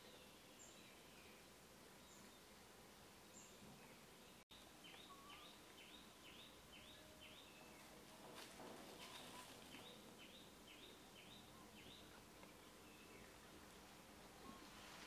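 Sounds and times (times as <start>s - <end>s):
bird chirps: 3.3s - 8.0s, 9.0s - 13.4s.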